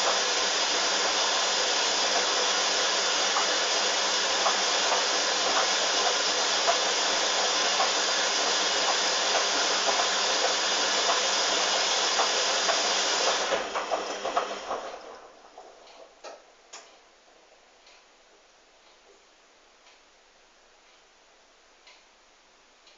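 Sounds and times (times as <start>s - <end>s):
washing machine spinning: 0.0s - 16.7s
washing machine clicks: 0.0s - 17.0s.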